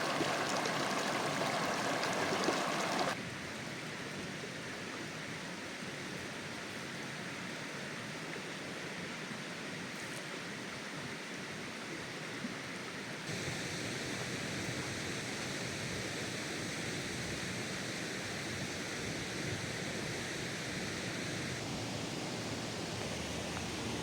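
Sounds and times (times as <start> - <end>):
rushing stream water: 0.0 - 3.2, 13.3 - 24.0.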